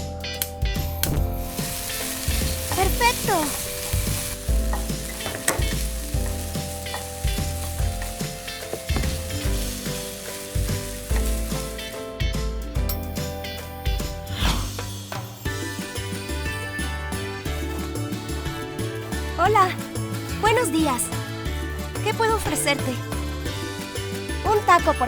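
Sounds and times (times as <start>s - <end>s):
food sizzling in a hot pan: 1.2s - 12.4s.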